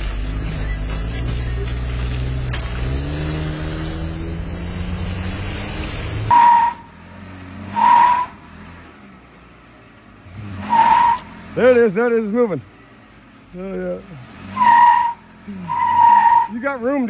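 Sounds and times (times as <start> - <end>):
vehicle engine speeding up: 0.0 - 17.0
car horn honks: 6.3 - 7.0, 7.7 - 8.6, 14.5 - 16.9.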